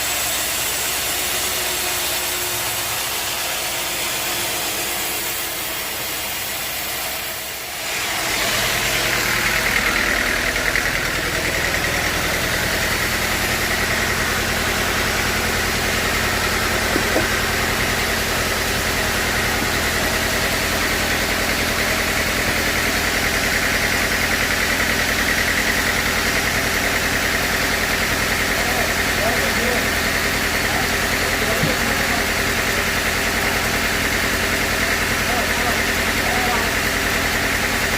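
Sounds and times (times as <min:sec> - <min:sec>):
high machine whine: 0:00.0 - 0:26.1
sawmill machinery running: 0:00.0 - 0:37.9.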